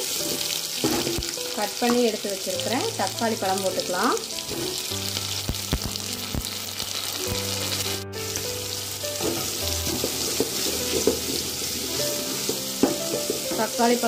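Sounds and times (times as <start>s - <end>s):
onions and tomatoes sizzling: 0.0s - 14.0s
wooden spatula scraping pot: 9.2s - 14.0s.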